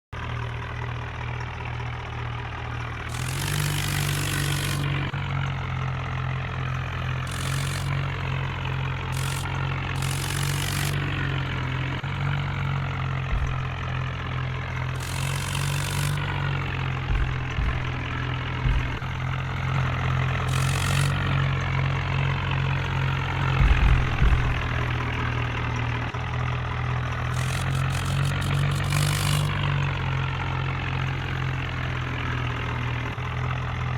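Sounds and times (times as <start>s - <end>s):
tractor engine running: 0.2s - 33.9s
short bursts of hiss: 3.1s - 5.0s, 7.3s - 8.1s, 9.2s - 11.1s, 15.0s - 16.5s, 20.5s - 21.4s, 27.4s - 29.7s
low thumps: 13.2s - 14.3s, 14.9s - 19.6s, 23.4s - 25.5s.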